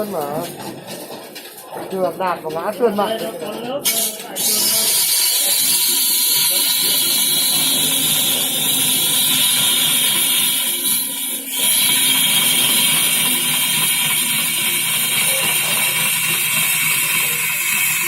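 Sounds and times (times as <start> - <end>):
wood lathe cutting wood: 3.9 - 18.0.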